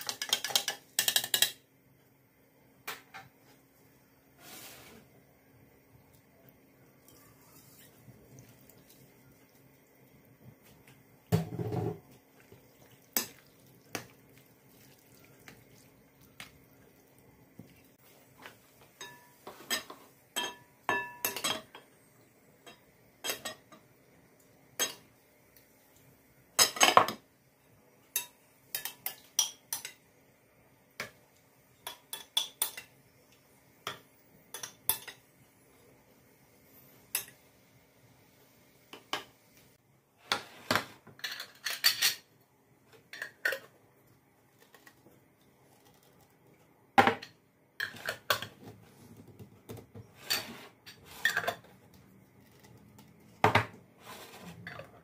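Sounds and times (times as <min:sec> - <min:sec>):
dishes and cutlery clinking: 0:19.0 - 0:21.9, 0:40.3 - 0:42.3, 0:50.0 - 0:51.7.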